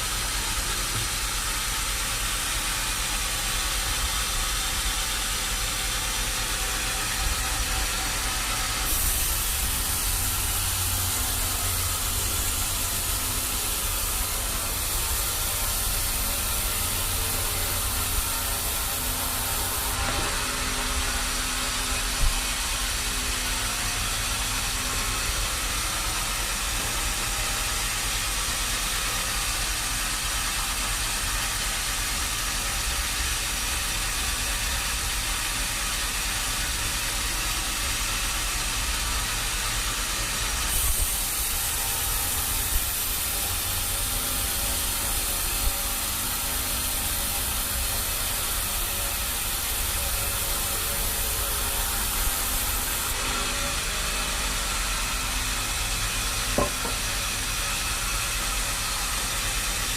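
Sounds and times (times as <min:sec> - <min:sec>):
sawmill machinery running: 0:00.0 - 0:59.9
high hiss: 0:06.7 - 0:20.1, 0:40.6 - 0:53.2
sharp knock: 0:56.6 - 0:57.0.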